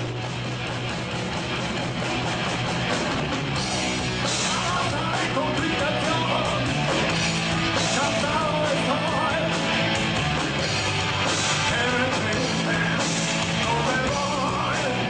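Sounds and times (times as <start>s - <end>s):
rock band playing: 0.0s - 15.0s
person singing: 4.4s - 6.7s, 7.9s - 9.6s, 11.6s - 15.0s.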